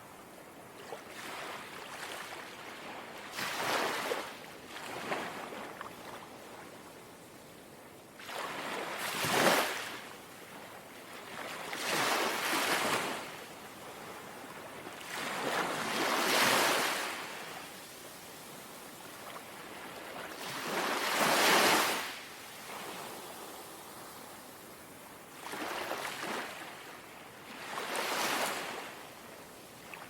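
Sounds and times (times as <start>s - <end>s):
sea waves lapping at shore: 0.7s - 6.8s, 8.2s - 30.0s.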